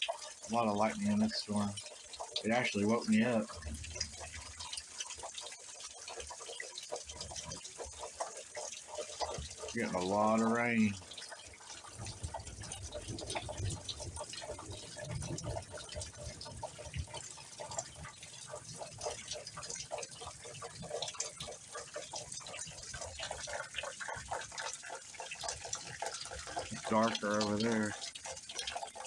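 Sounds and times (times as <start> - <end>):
heavy rain splashing on ground: 8.6 - 29.0.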